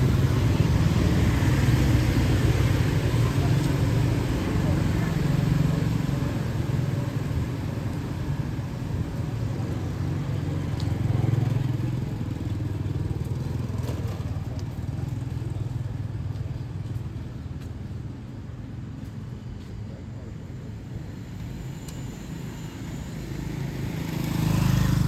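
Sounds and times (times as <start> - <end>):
motorbike engines passing: 0.0 - 18.7, 20.0 - 25.0.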